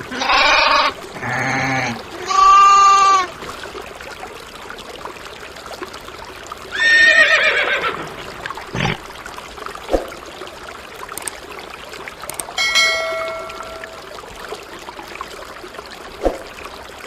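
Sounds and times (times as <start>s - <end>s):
animal cry: 0.0s - 3.3s.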